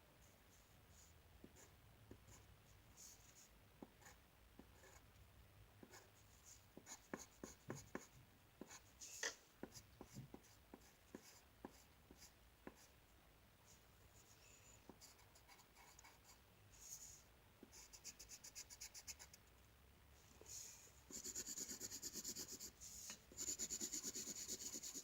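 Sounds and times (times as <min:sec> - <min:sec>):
drawing tool scratching on paper: 0:21.1 - 0:22.8, 0:23.4 - 0:25.0.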